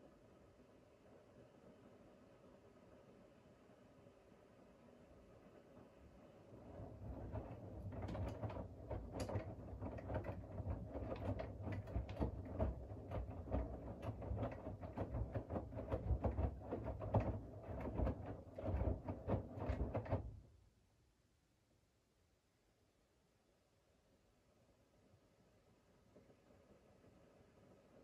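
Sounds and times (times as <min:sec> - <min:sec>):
washing machine motor hum: 0:06.5 - 0:20.5
laundry tumbling knocks and clicks: 0:06.6 - 0:20.5.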